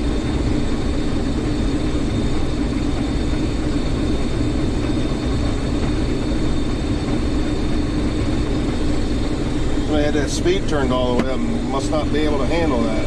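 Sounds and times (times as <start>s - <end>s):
combine harvester engine drone: 0.0s - 13.0s
steady high whine: 0.0s - 13.0s.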